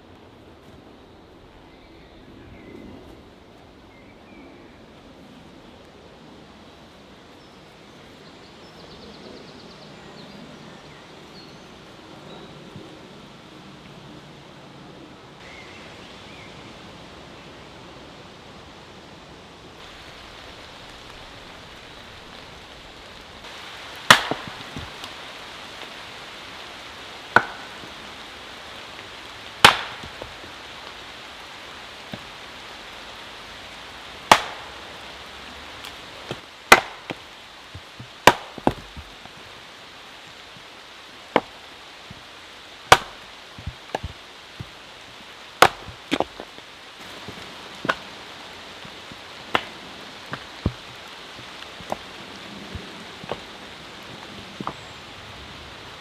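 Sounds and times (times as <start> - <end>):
steady hiss: 10.8 - 56.0
tool striking wood: 24.1 - 25.1, 27.4 - 27.8, 29.6 - 30.5, 34.3 - 34.8, 36.3 - 37.2, 37.8 - 39.4, 42.9 - 44.8, 45.6 - 46.4.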